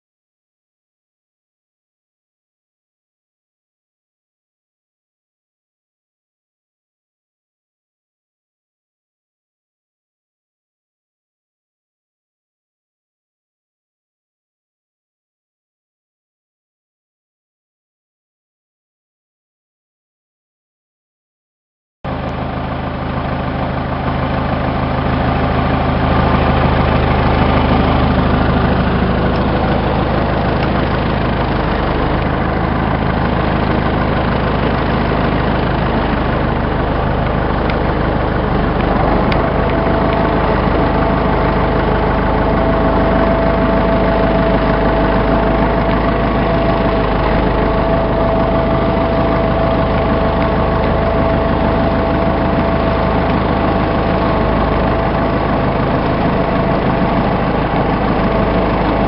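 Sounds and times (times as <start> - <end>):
heavy vehicle engine idling: 22.1 - 59.0
high steady whine: 22.1 - 59.0.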